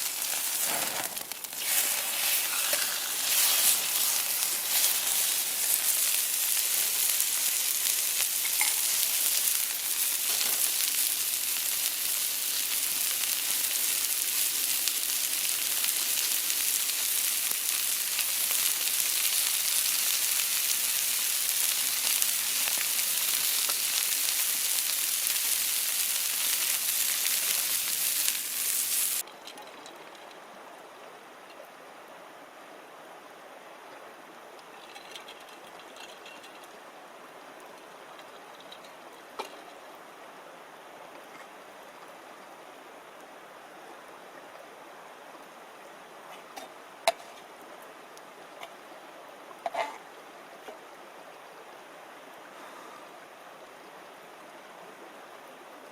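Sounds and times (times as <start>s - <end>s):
loud sizzling hiss: 0.0s - 29.3s
sharp crackles and pops: 0.0s - 29.3s
quiet steady hiss: 0.0s - 55.9s.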